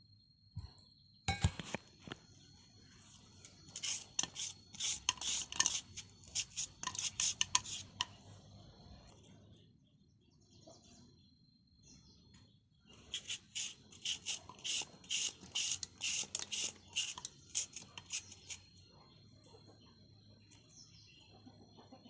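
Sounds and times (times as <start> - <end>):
utensils clinking against a dish: 3.8 - 8.1.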